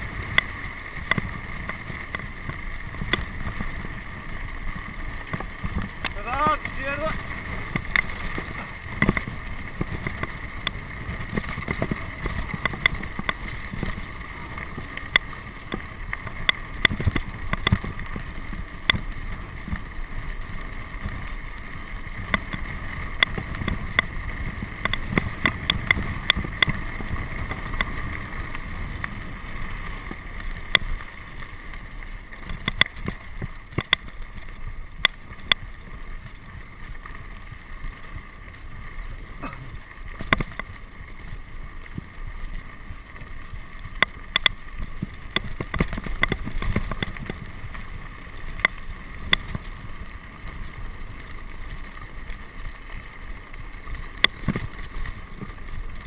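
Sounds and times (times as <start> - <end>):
sharp clicks and rattles: 4.7 - 18.2, 32.4 - 36.5, 43.8 - 49.8.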